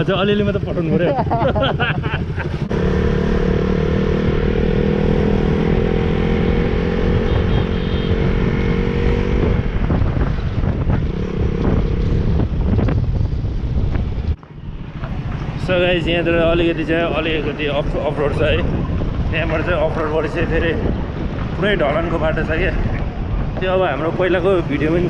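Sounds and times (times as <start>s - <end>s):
motorcycle engine running: 0.0s - 16.5s.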